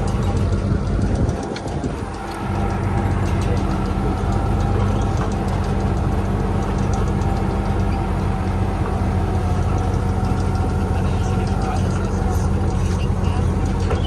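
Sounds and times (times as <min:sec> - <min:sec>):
engine idling: 0:00.0 - 0:14.0
faint ticking: 0:00.0 - 0:14.0.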